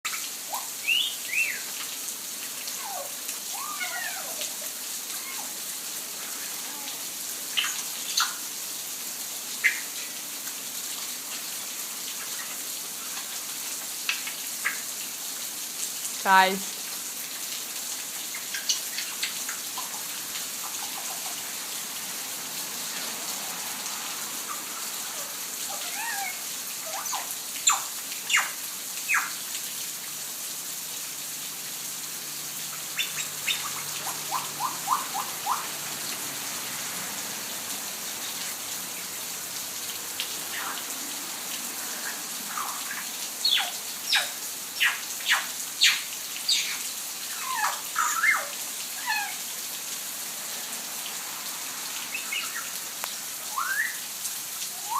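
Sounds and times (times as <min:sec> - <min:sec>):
rain hissing: 0:00.0 - 0:54.9
birds chirping: 0:32.8 - 0:35.7.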